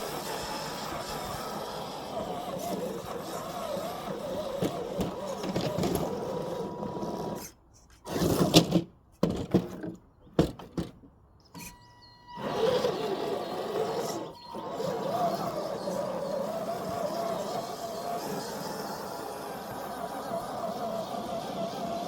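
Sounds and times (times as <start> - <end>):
electric motor and gearbox whining: 0.0 - 8.8, 11.5 - 22.0.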